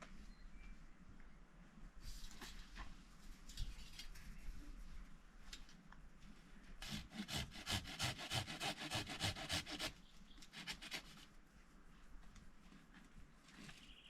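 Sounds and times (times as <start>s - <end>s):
hand saw rasping wood: 6.8s - 9.9s, 10.5s - 11.2s.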